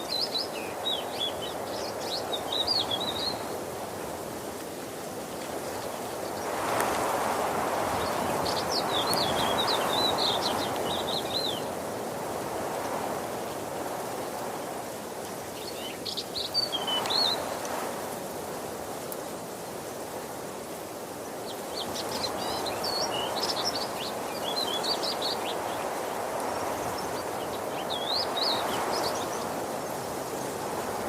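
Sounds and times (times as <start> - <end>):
songbird singing: 0.0 - 4.2, 5.1 - 12.0, 12.6 - 17.8, 21.2 - 31.0
waterfall rushing: 6.0 - 12.7, 20.4 - 31.0.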